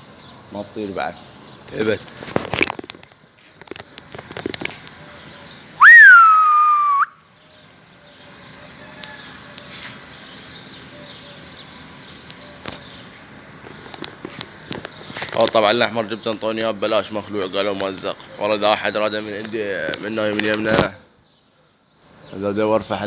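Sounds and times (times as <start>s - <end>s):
person whistling with pitch slide: 5.8s - 7.1s.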